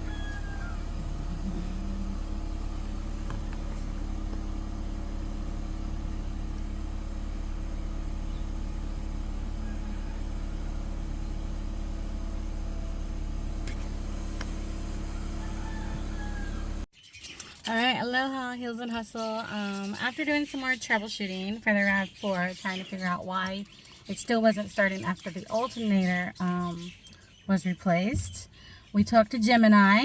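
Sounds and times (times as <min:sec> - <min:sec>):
car engine idling: 0:00.0 - 0:16.9.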